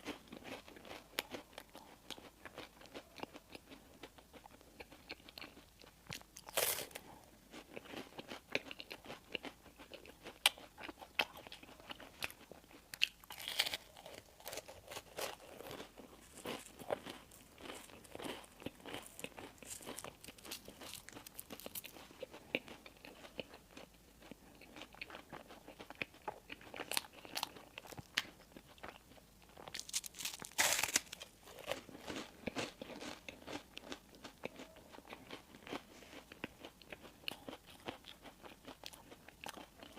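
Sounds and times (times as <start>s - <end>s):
chewing: 0.0s - 39.9s
crunchy bites into crisp bread: 5.5s - 7.0s, 13.0s - 22.7s, 29.6s - 34.0s.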